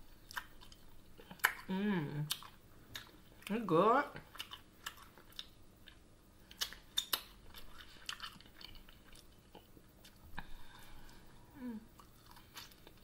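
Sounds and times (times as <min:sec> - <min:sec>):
chewing chicken wing: 0:00.1 - 0:03.5, 0:04.2 - 0:10.2
wet clicks and smacks: 0:00.2 - 0:01.7, 0:04.3 - 0:09.3.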